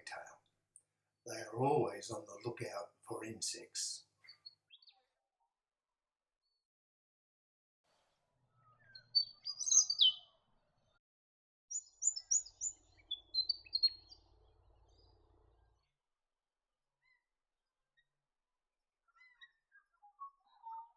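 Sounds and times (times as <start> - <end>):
bird chirping: 4.2 - 5.1, 8.6 - 10.4, 11.7 - 15.9, 19.1 - 20.7.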